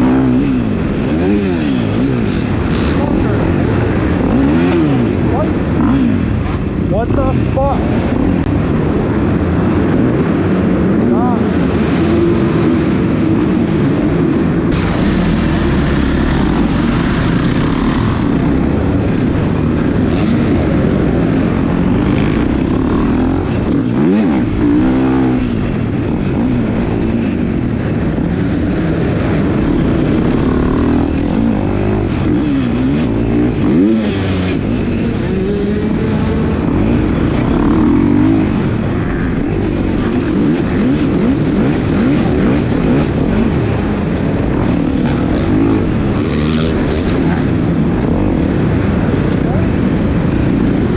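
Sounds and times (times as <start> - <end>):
dirt bikes revving: 0.0 - 50.9
hissing burst: 14.8 - 18.7.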